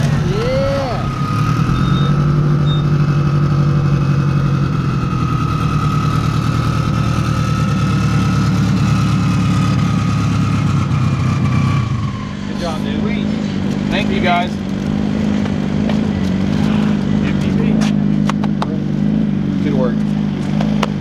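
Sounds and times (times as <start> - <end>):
drag car engine idling: 0.0 - 21.0
high turbo whine: 0.0 - 21.0.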